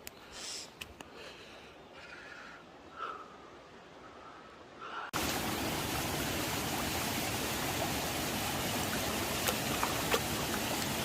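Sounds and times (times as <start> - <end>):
mountain stream rushing: 5.2 - 11.0.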